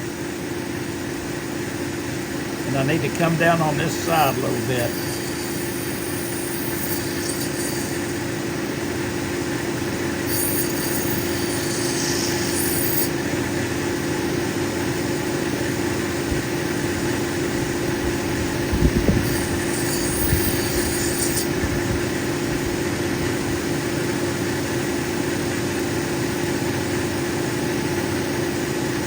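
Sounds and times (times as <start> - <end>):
grinding machine motor humming: 2.4 - 14.1, 16.7 - 22.6
bright grinding hiss: 2.7 - 13.6, 17.8 - 22.1.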